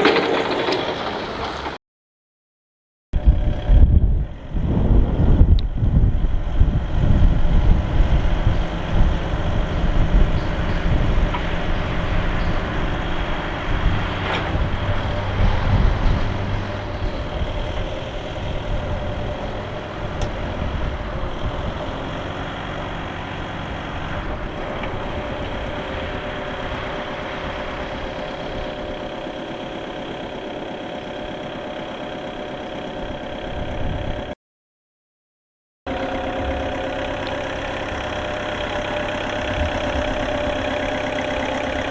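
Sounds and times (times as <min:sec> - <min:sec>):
forklift diesel engine running: 0:03.2 - 0:34.4, 0:35.9 - 0:41.9.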